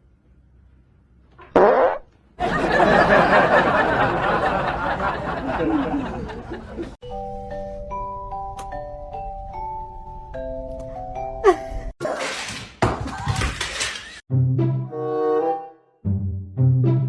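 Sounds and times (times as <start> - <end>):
group of people laughing: 2.4 - 7.0.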